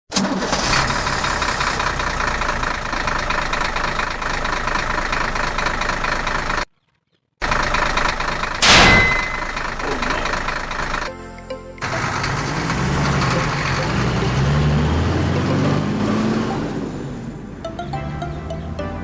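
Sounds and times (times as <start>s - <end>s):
engine idling: 0.1s - 6.7s, 7.4s - 11.2s, 11.8s - 18.7s
loud short whoosh: 8.6s - 9.4s.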